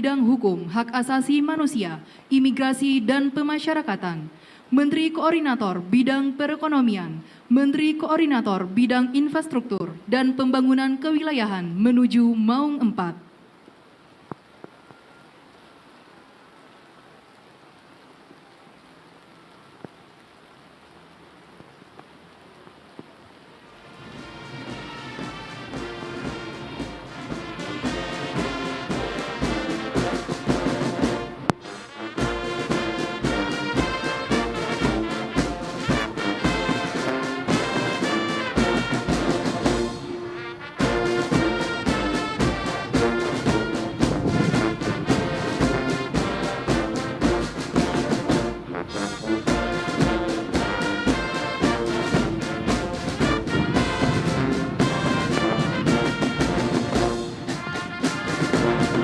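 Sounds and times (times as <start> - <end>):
brass band playing a march: 23.8 - 59.0
bass drum beat: 24.2 - 31.5, 32.2 - 40.0, 40.8 - 59.0.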